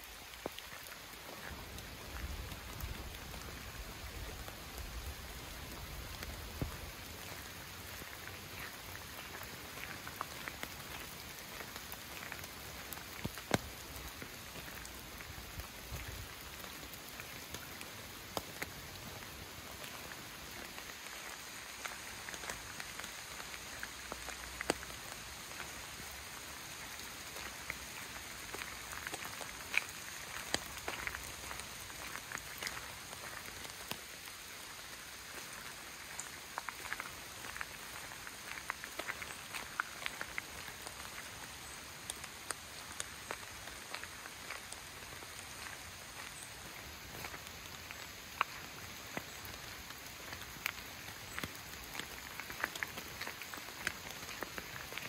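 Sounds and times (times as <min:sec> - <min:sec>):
steady rain in forest: 0:00.0 - 0:55.0.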